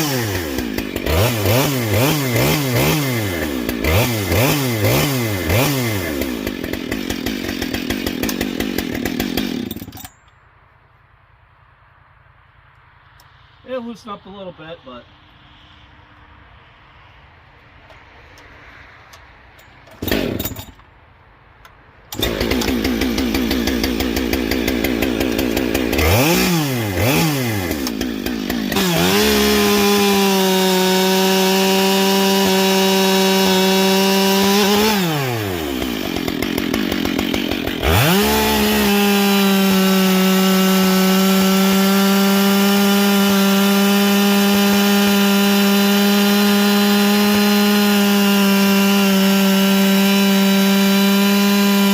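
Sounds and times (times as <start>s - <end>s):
chainsaw revving: 0.0s - 10.1s, 20.0s - 20.7s, 22.1s - 51.9s.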